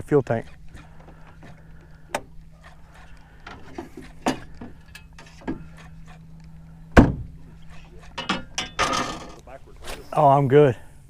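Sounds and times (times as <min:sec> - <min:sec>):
faint steady hum: 0:00.0 - 0:11.0
sharp knocks on boat deck: 0:07.0 - 0:07.3.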